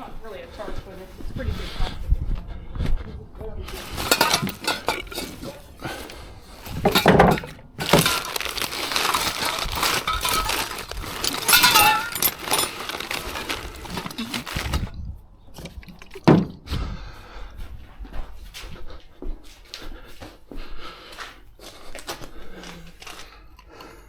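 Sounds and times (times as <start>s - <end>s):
hard objects clattering: 3.7s - 14.9s.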